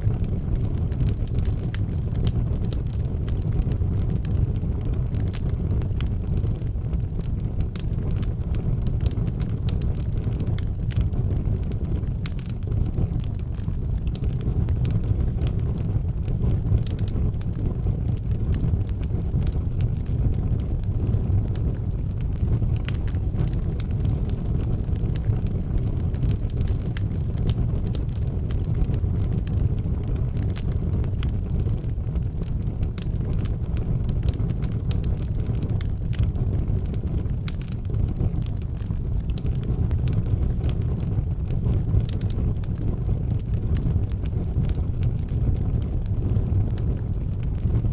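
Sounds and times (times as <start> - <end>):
fire crackling and popping: 0.0 - 47.9
wood fire rumbling: 0.0 - 47.9.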